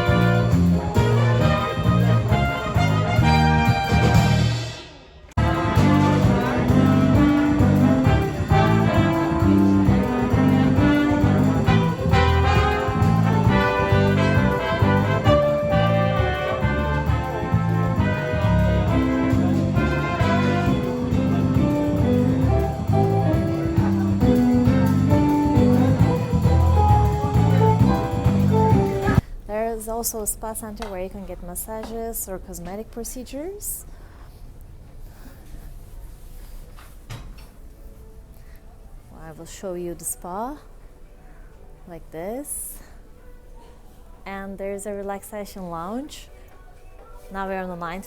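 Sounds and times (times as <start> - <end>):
brass-led instrumental music: 0.0 - 29.2.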